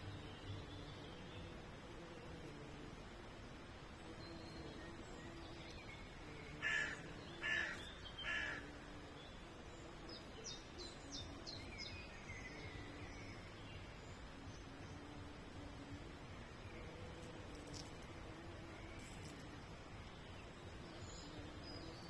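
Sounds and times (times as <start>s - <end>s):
songbird chirping: 0.0s - 2.9s, 3.9s - 22.0s
crow cawing: 6.6s - 8.6s.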